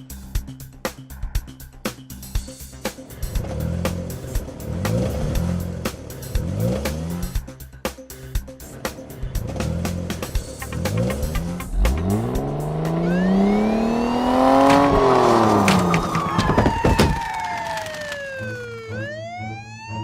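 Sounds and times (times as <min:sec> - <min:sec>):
background music: 0:00.0 - 0:20.0
cartoon car engine revving: 0:02.8 - 0:07.5, 0:08.6 - 0:20.0
siren-like wail: 0:13.0 - 0:20.0.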